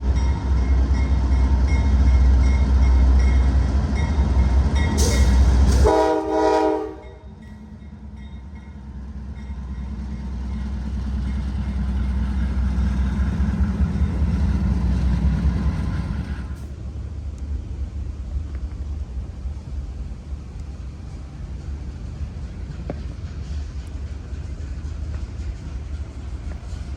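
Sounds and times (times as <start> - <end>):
diesel locomotives rumbling past: 0.0 - 26.9
multi-tone train horn blast: 5.0 - 7.4.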